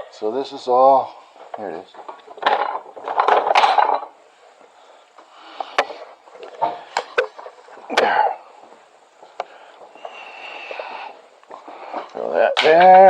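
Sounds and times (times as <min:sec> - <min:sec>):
tools and wooden objects rattling: 0:01.3 - 0:04.8, 0:05.7 - 0:10.2.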